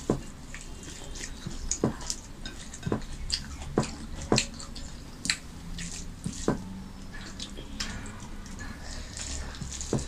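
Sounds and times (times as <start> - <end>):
wet chewing smacks: 0.0 - 6.6.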